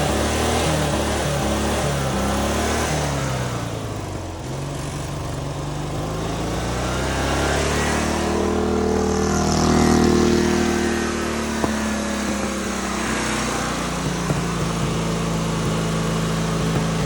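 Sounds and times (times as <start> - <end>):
lawnmower engine running: 0.0 - 17.0.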